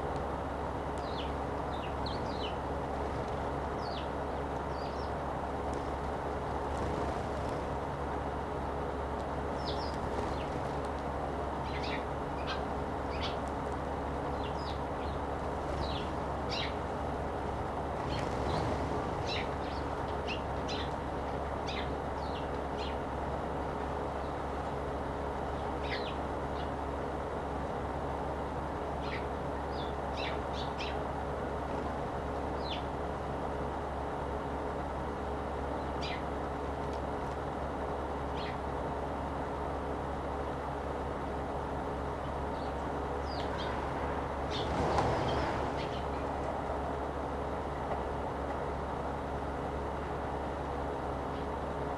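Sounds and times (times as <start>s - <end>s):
background hiss and hum: 0.0s - 51.9s
sparrows chirping: 0.8s - 8.7s, 9.3s - 23.1s, 25.4s - 27.0s, 29.0s - 31.5s, 32.4s - 33.0s, 35.7s - 36.4s, 38.2s - 38.8s, 42.0s - 47.0s.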